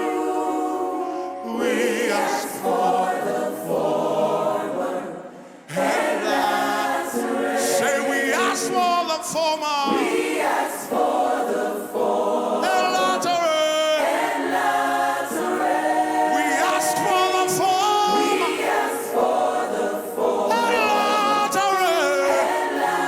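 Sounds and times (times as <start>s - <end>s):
choir singing gospel song: 0.0s - 23.0s.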